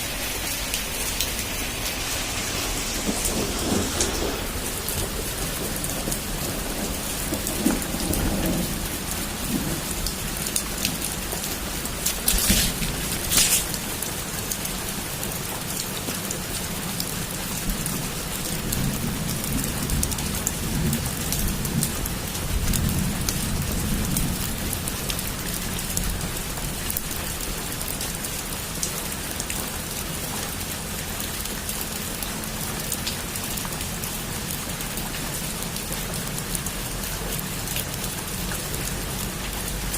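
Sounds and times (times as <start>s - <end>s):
heavy rain falling: 0.0s - 39.9s
low thunder rumbling: 0.3s - 14.8s
sharp thunder cracks: 2.2s - 10.0s.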